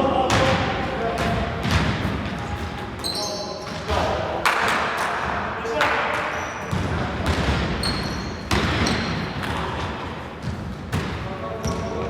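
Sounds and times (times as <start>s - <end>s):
basketball bouncing on gym floor: 0.3s - 5.4s, 6.2s - 12.0s
sneakers squeaking on court: 1.2s - 4.2s, 6.1s - 12.0s.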